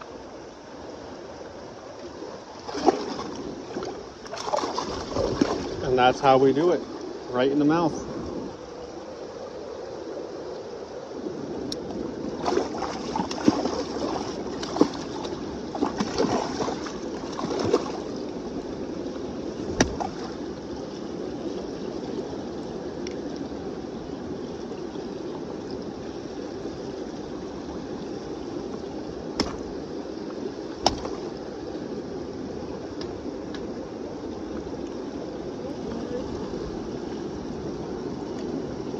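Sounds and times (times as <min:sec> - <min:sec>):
river water rushing: 0:00.0 - 0:22.9, 0:23.6 - 0:38.9
water splashing: 0:02.4 - 0:07.9, 0:11.9 - 0:18.6, 0:19.6 - 0:22.2, 0:29.1 - 0:31.5
sharp knocks: 0:30.8 - 0:31.1.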